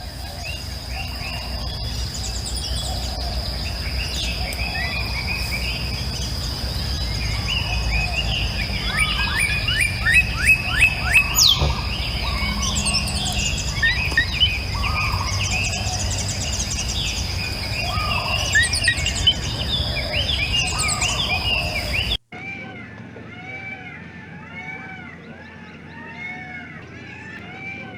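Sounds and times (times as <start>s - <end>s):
low rumble: 0.0s - 22.2s
bird falling notes: 0.0s - 27.9s
birds calling and singing: 0.0s - 27.9s.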